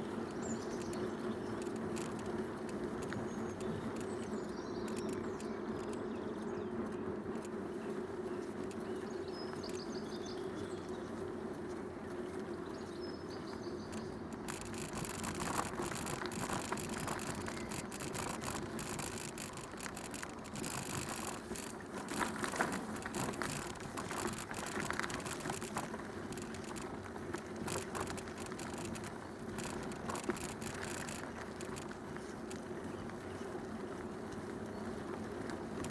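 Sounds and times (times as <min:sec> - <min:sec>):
bicycle tyres rolling: 0:00.0 - 0:35.9
crackling hiss: 0:13.9 - 0:33.2.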